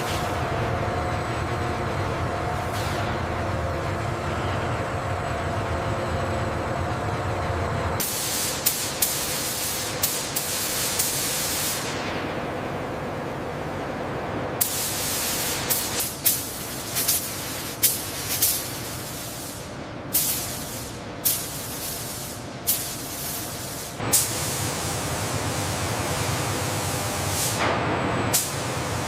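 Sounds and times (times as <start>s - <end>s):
compressed air nozzle hiss bursts: 8.0s - 12.0s, 14.6s - 24.8s, 26.7s - 27.6s.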